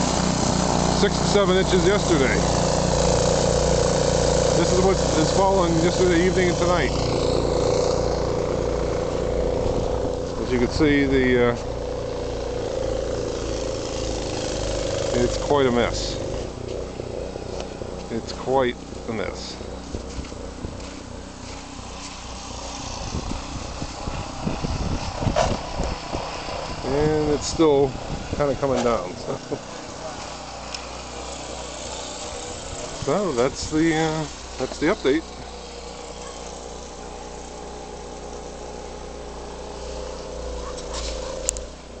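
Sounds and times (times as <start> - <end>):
snowblower engine running: 0.0 - 42.0.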